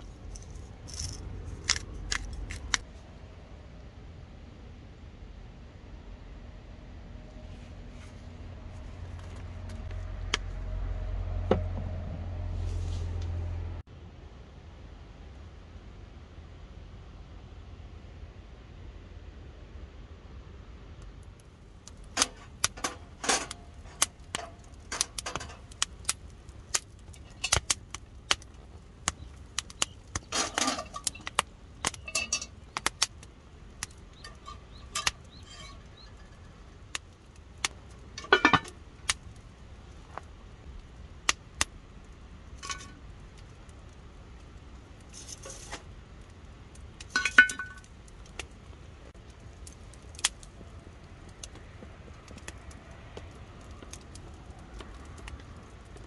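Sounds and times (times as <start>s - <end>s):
utensils clattering: 22.2s - 23.6s, 30.3s - 31.3s, 32.0s - 32.5s, 38.2s - 38.7s
cooking utensils clinking on cookware: 30.3s - 31.4s, 32.0s - 32.6s, 38.2s - 38.7s, 47.2s - 47.8s.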